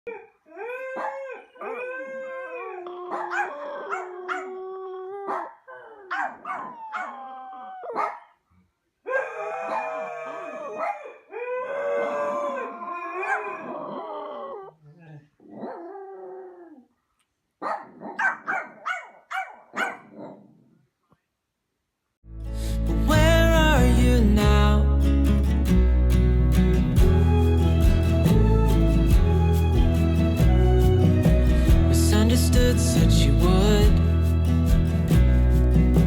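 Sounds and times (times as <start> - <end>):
animal howling: 0.1 - 8.0, 9.1 - 16.8.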